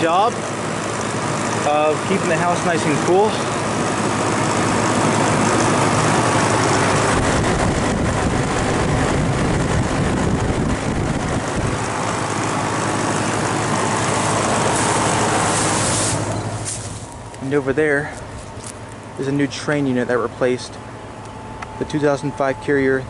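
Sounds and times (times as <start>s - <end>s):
compressor drone: 0.0s - 23.0s
fan air rushing: 0.0s - 23.0s.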